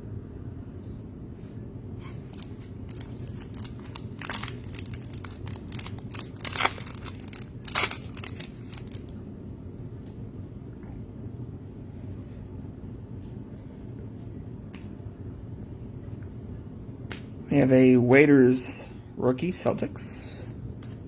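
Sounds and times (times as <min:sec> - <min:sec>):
foil wrapper crinkling: 0:02.0 - 0:09.2
foil wrapper ripping: 0:02.0 - 0:09.2.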